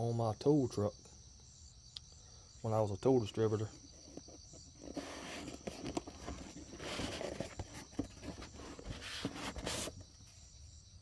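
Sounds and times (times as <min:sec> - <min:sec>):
rustling and scraping of small parts: 0:03.7 - 0:10.5.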